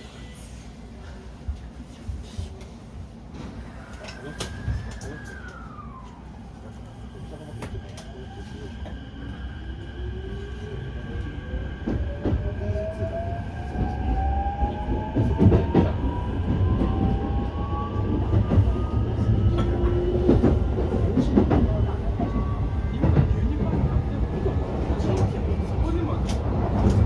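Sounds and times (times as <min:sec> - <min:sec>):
train running noise: 0:11.8 - 0:27.0.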